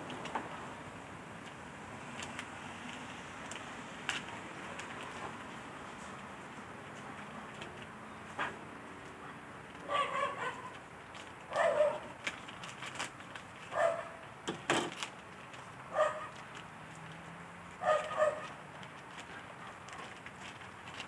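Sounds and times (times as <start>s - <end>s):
dog barking: 9.9s - 10.7s, 11.5s - 12.1s, 13.7s - 14.2s, 15.9s - 16.4s, 17.8s - 18.6s.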